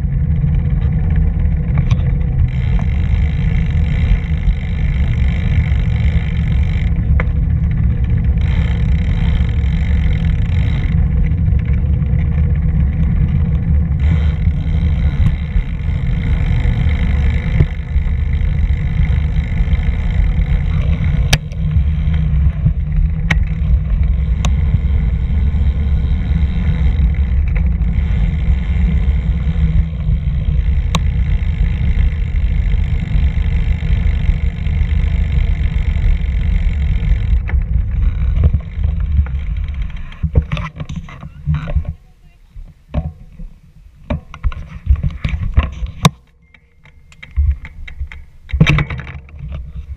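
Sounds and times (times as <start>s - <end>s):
sharp clicks: 13.4s - 29.0s.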